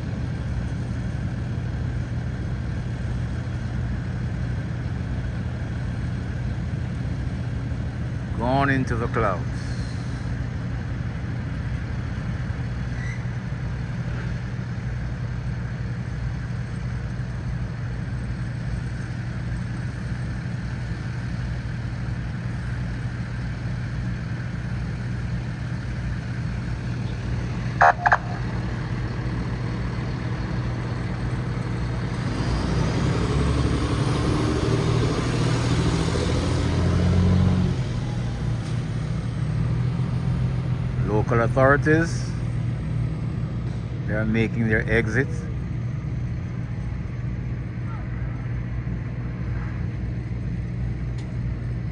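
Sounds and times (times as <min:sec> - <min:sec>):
engine idling: 0:13.9 - 0:39.7
short beeps: 0:27.8 - 0:28.5.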